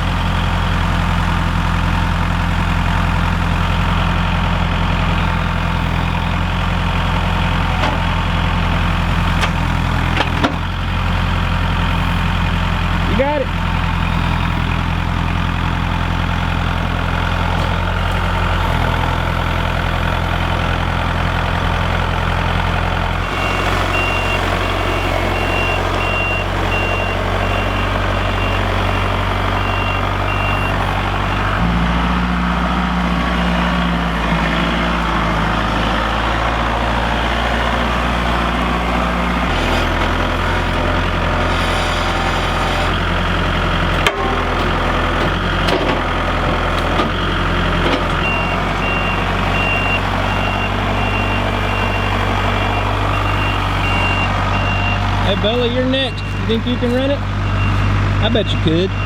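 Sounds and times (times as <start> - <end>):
tractor diesel engine running: 0.0 - 59.0
reverse alarm beeping: 23.2 - 31.6, 48.2 - 59.0.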